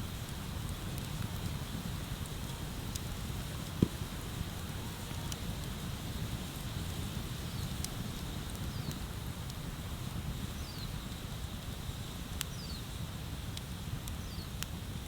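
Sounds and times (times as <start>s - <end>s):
bonfire crackling: 0.0s - 15.0s.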